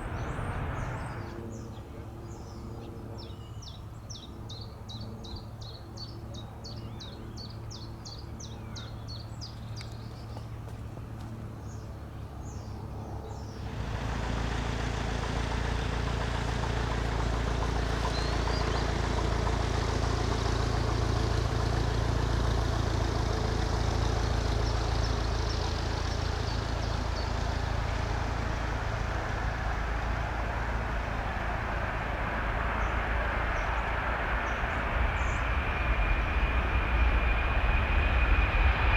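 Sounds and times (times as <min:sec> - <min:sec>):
whine rising in pitch: 0:00.0 - 0:01.6, 0:27.1 - 0:38.9
low hum: 0:00.0 - 0:01.9, 0:13.4 - 0:38.9
jet engine noise: 0:00.0 - 0:05.6, 0:07.2 - 0:38.9
birds chirping: 0:00.0 - 0:38.9.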